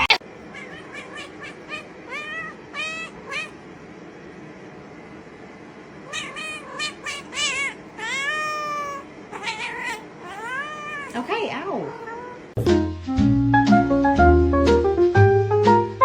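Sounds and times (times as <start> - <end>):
cat meowing: 0.4 - 3.6, 6.0 - 12.6.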